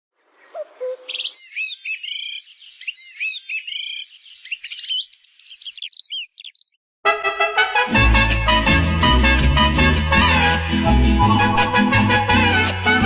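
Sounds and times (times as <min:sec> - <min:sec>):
birds chirping and trilling: 0:00.2 - 0:06.8
bird warbling: 0:00.4 - 0:06.8
low bird call: 0:00.4 - 0:06.8.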